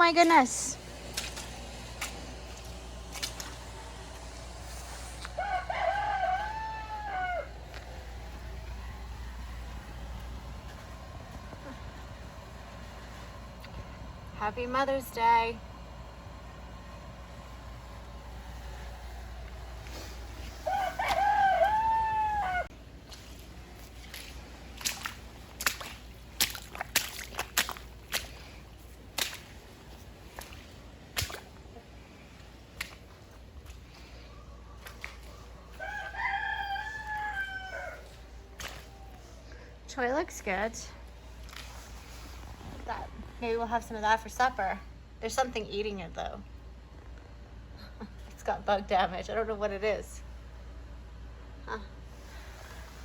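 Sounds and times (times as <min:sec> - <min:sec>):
rooster crowing: 0:05.2 - 0:09.8, 0:20.6 - 0:22.7, 0:35.6 - 0:38.3.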